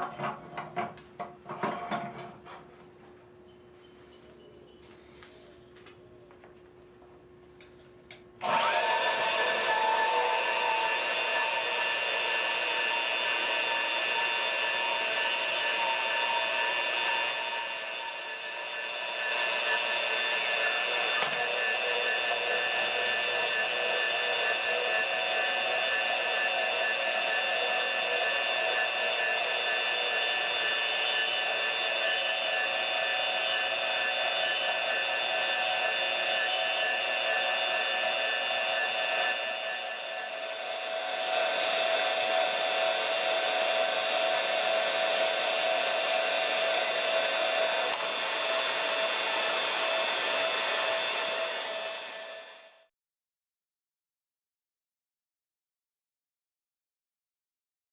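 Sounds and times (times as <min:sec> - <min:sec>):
band saw motor whine: 0:08.4 - 0:52.9.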